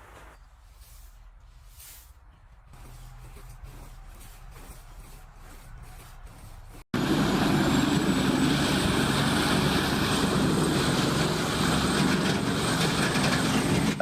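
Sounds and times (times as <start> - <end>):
wood grinder engine drone: 7.0 - 14.0.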